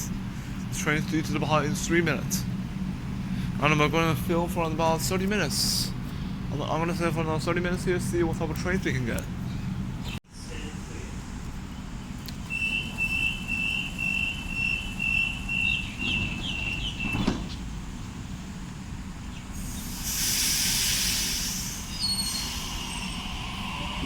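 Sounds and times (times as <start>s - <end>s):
train equipment humming: 0.0s - 24.0s
pneumatic air hiss: 19.6s - 24.0s.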